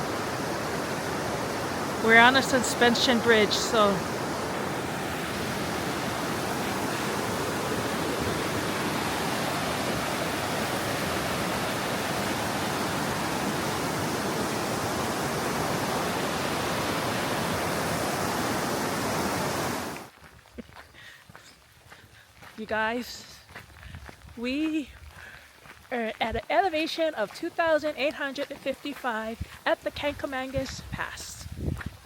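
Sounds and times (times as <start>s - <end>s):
river water rushing: 0.0s - 20.1s.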